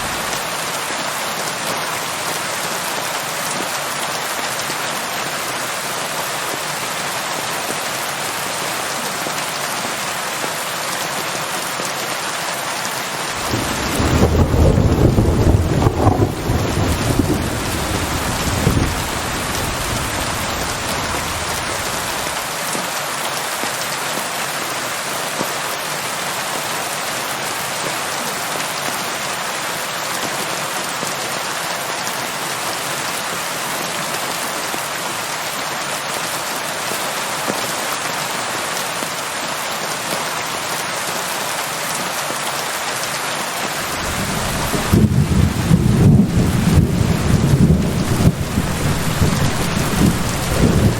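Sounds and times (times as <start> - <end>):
thunder rumble: 0.0 - 0.5, 13.4 - 22.4, 43.8 - 50.9
steady rain: 0.0 - 50.9.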